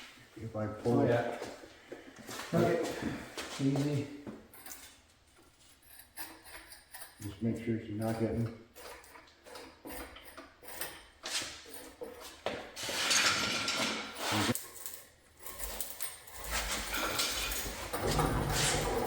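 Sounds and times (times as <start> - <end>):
metallic clinks and knocks: 4.4 - 19.0
metal scraping: 8.2 - 19.0.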